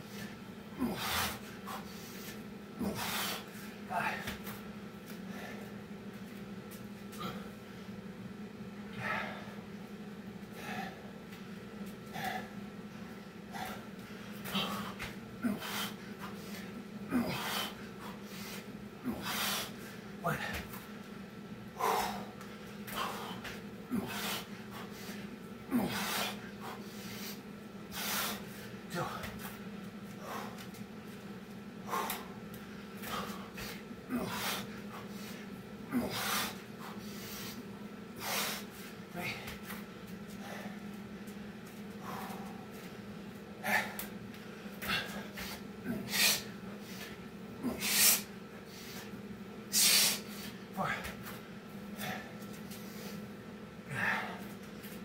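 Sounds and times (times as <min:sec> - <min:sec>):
steady low hum: 0:00.0 - 0:55.0
man breathing hard: 0:00.1 - 0:04.5, 0:05.1 - 0:05.9, 0:08.9 - 0:09.7, 0:10.5 - 0:11.2, 0:12.0 - 0:20.8, 0:21.7 - 0:30.8, 0:31.8 - 0:41.0, 0:42.0 - 0:43.0, 0:43.6 - 0:51.3, 0:51.9 - 0:54.6
man grunting: 0:03.9 - 0:04.3, 0:17.1 - 0:17.7, 0:20.2 - 0:20.6, 0:25.7 - 0:26.4, 0:28.9 - 0:29.4, 0:34.1 - 0:34.6, 0:39.1 - 0:39.6, 0:50.8 - 0:51.2.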